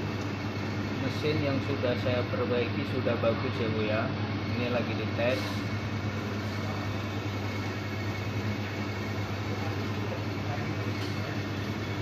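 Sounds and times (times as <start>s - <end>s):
laundry machine motor hum: 0.0s - 12.0s.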